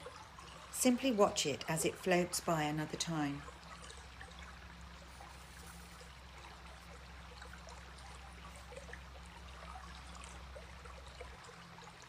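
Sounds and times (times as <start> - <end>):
steady low hum: 0.0 - 12.0
stream water babbling: 0.0 - 12.0.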